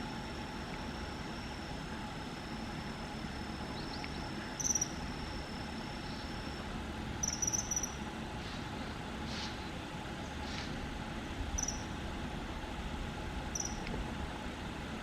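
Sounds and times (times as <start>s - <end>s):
thin high whine: 0.0s - 9.7s, 11.5s - 12.0s
steady background noise: 0.0s - 15.0s.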